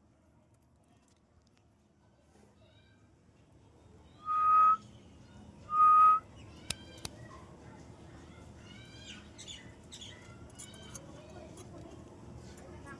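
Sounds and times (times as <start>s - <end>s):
parrot whistling: 4.3s - 4.8s, 5.7s - 6.2s.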